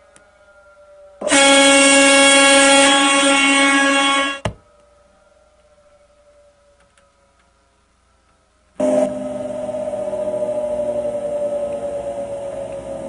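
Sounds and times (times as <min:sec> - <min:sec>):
car wash motor humming: 0:08.8 - 0:13.0.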